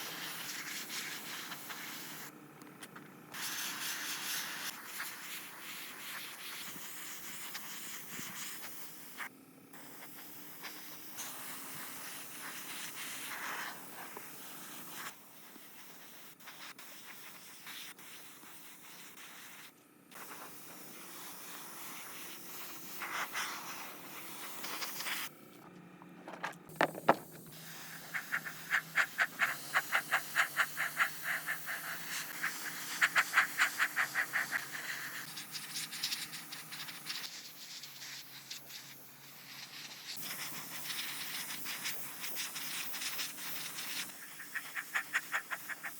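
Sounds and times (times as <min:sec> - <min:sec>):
steady hiss: 0:03.4 - 0:25.3, 0:26.7 - 0:45.9
back-and-forth scraping strokes: 0:20.4 - 0:32.4.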